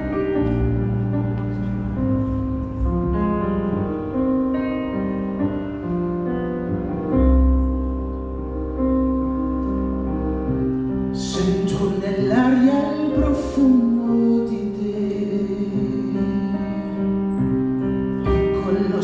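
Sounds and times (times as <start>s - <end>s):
piano: 0.0s - 19.0s
person's voice: 11.2s - 16.8s, 18.3s - 19.0s.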